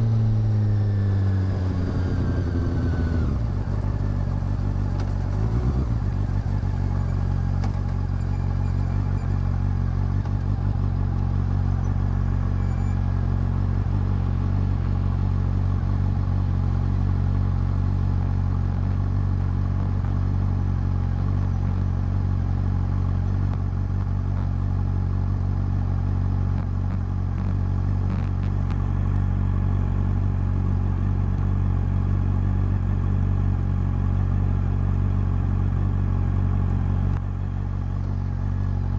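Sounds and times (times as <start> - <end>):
motorcycle engine running steadily: 0.0 - 38.9.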